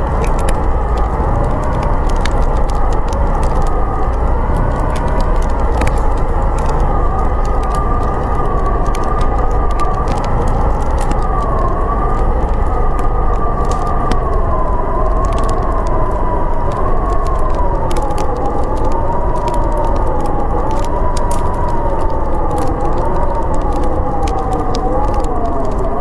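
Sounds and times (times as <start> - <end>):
blizzard wind howling: 0.0 - 26.0
steady low rumble: 0.0 - 26.0
wood fire crackling: 0.0 - 26.0.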